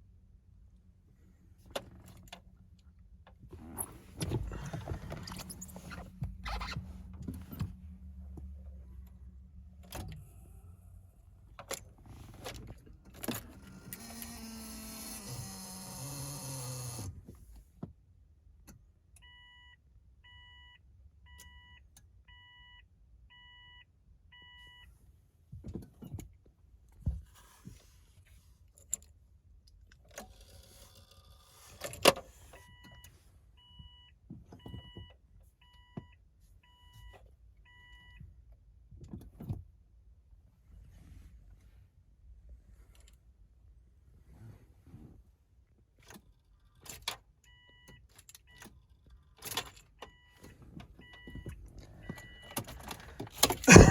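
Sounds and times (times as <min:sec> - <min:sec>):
car warning chime beeping: 0:19.2 - 0:24.9.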